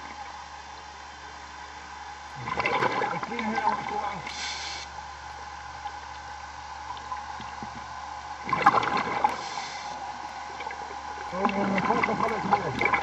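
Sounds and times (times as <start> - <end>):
underwater gurgling and bubbling: 2.3 - 4.8, 5.7 - 13.0
crackling burst of bubbles: 2.4 - 3.3, 8.4 - 9.9.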